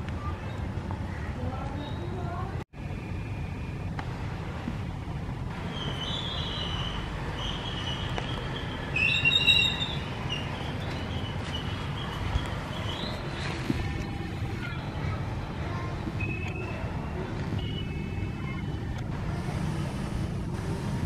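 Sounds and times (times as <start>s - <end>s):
bird chirps and whistles: 5.7s - 10.5s.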